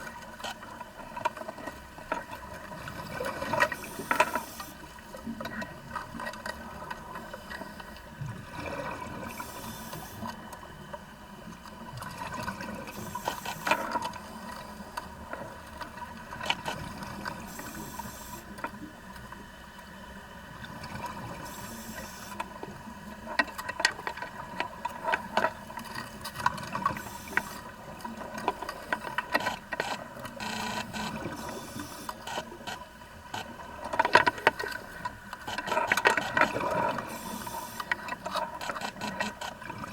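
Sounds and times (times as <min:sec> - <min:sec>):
water noise: 0:00.0 - 0:39.9.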